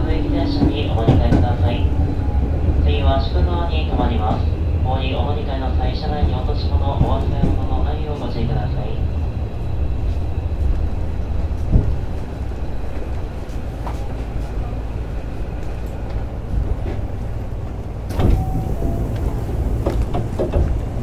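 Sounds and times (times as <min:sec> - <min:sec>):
train wheels rumbling on rail: 0:00.0 - 0:21.0
track knock: 0:00.5 - 0:01.8, 0:06.2 - 0:07.9, 0:18.1 - 0:21.0.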